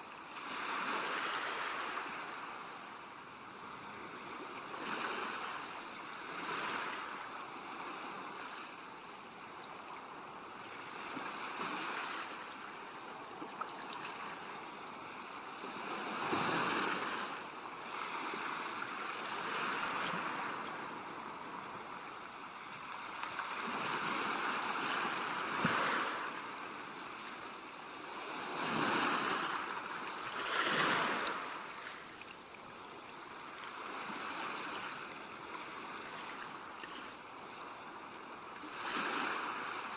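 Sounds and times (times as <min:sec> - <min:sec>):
sea waves washing ashore: 0:00.1 - 0:39.9.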